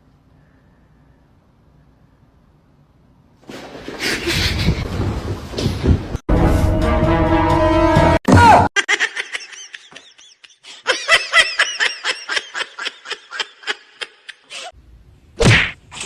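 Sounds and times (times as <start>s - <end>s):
high-pitched laughter: 8.8s - 14.7s.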